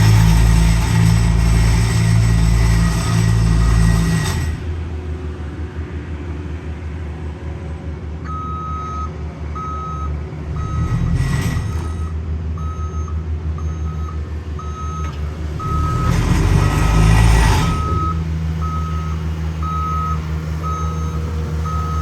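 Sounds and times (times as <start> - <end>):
engine low rumble: 0.0 - 22.0
reversing alarm beeping: 2.6 - 4.5, 8.3 - 22.0.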